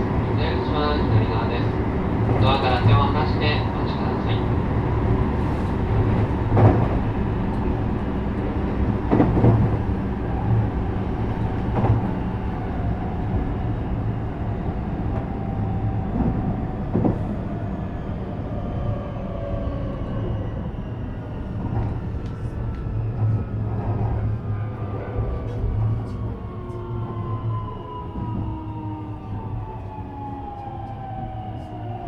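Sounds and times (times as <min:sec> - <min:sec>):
train wheels rumbling on rail: 0:00.0 - 0:32.0
clacks over rail joints: 0:06.0 - 0:09.9.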